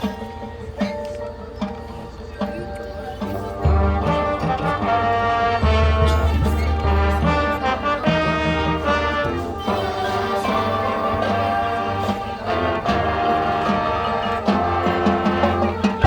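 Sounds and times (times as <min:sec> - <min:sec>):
marching band playing: 0:00.0 - 0:16.0
percussion hits: 0:00.0 - 0:16.0
brass sustained chords: 0:03.5 - 0:16.0.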